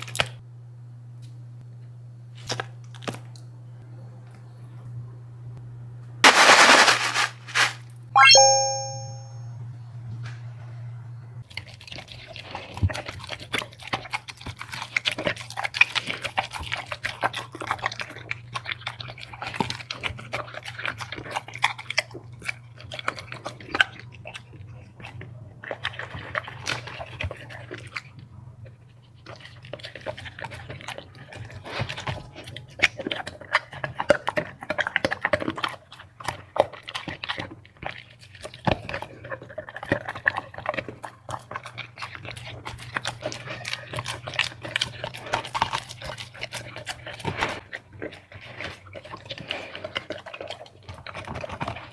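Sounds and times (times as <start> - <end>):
dog chewing and crunching food: 0.0 - 0.4, 11.4 - 51.9
short ringing ding: 8.2 - 9.4.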